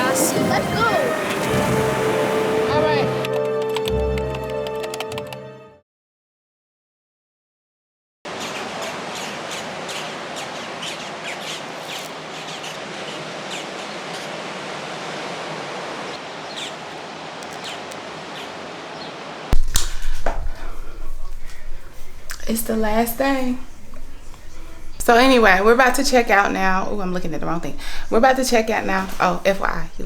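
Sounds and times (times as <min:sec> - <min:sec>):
steady outdoor rushing noise: 0:00.0 - 0:03.3, 0:08.3 - 0:19.6
high bird chirps: 0:16.1 - 0:19.2.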